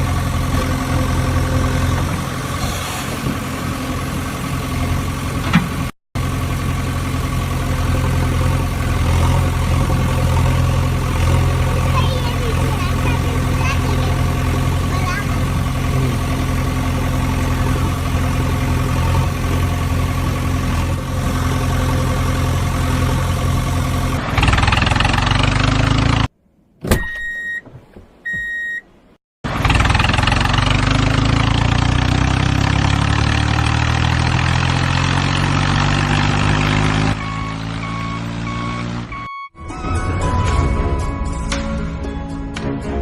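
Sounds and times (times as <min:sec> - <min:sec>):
heavy vehicle engine revving: 0:00.0 - 0:26.3, 0:29.5 - 0:41.1
short beeps: 0:27.0 - 0:27.7, 0:28.3 - 0:28.9, 0:37.2 - 0:39.6
repeating beep: 0:37.2 - 0:40.5.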